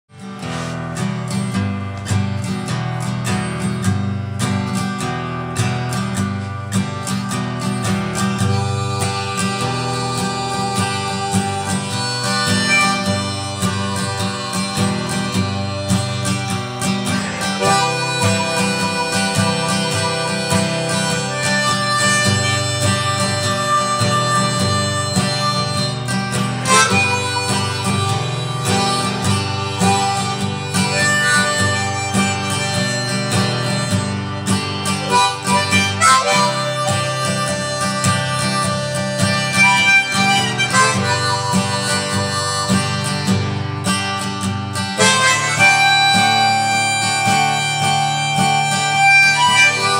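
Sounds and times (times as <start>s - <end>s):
acoustic guitar: 0.1s - 49.9s
harmonica melody: 0.2s - 49.9s.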